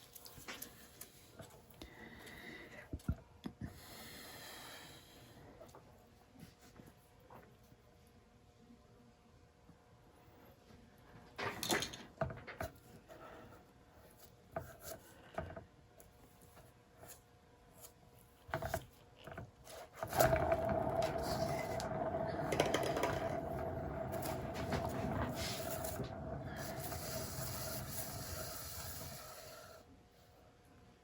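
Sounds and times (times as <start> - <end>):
knocks and scrapes on wood: 20.0 - 28.5.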